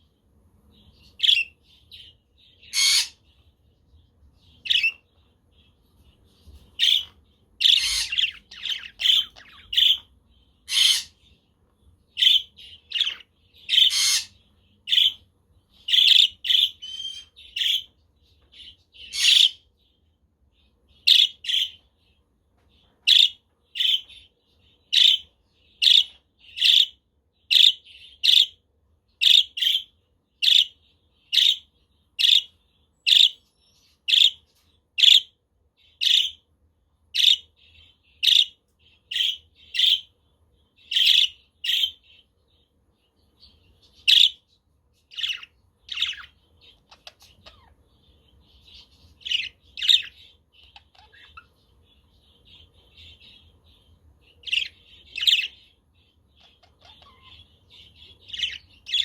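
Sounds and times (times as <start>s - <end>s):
parrot short sharp calls: 2.7s - 3.2s.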